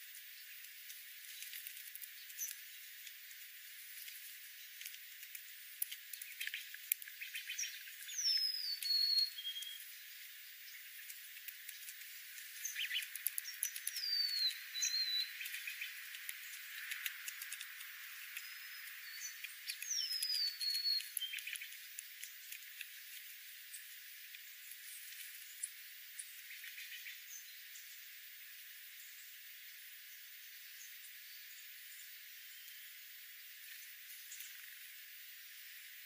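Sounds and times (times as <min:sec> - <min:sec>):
songbird whistled call: 0:07.2 - 0:09.9, 0:12.6 - 0:15.9, 0:18.4 - 0:21.7
sharp clicks: 0:11.0 - 0:23.0.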